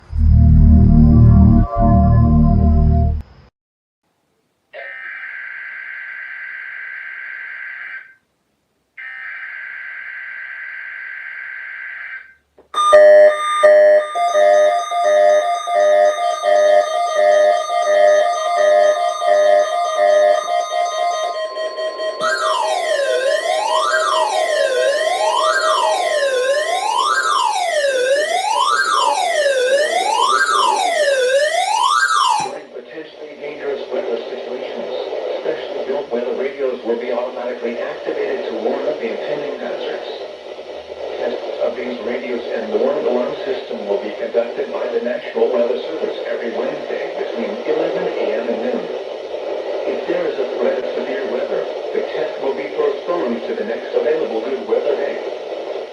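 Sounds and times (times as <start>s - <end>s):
buzzy electronic warbles: 0.0s - 3.2s, 14.2s - 27.4s
keyboard music: 0.0s - 3.2s, 12.8s - 32.6s
steady low tone: 0.0s - 3.4s.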